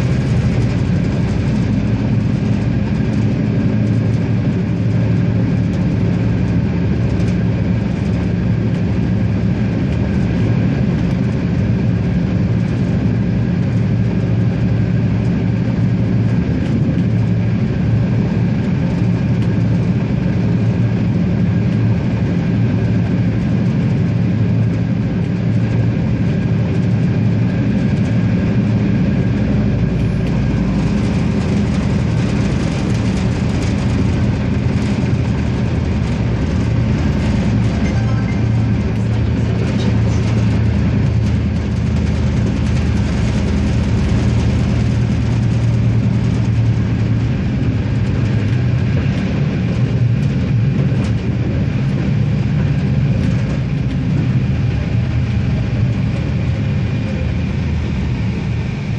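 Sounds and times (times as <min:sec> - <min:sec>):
diesel railcar engine drone: 0:00.0 - 0:58.9
rolling wheel noise: 0:29.9 - 0:54.4.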